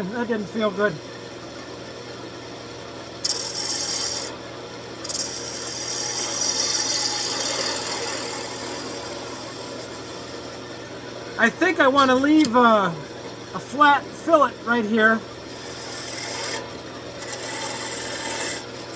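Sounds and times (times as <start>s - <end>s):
lathe tool cutting wood: 3.2s - 4.4s, 5.0s - 10.6s, 11.5s - 12.7s, 13.6s - 18.9s
lathe humming: 3.2s - 18.9s.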